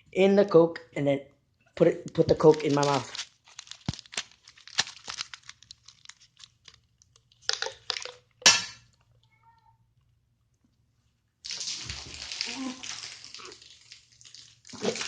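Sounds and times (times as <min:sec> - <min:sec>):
plastic packet crinkling: 0:02.0 - 0:08.4.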